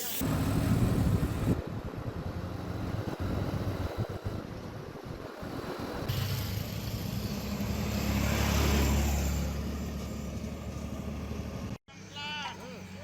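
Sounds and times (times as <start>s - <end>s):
engine running: 0.2s - 13.0s.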